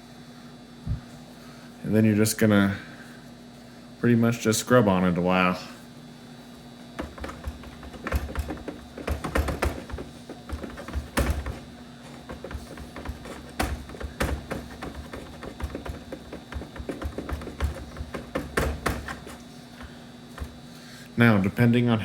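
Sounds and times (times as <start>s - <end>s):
plastic taps and knocks: 7.0s - 19.4s
towel scrubbing plastic: 7.8s - 19.4s.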